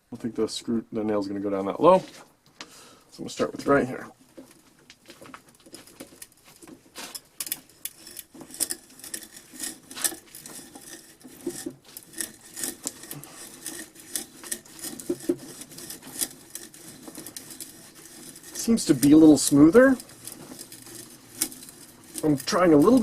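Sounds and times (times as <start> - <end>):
sharpening rod scraping metal: 7.0 - 23.0.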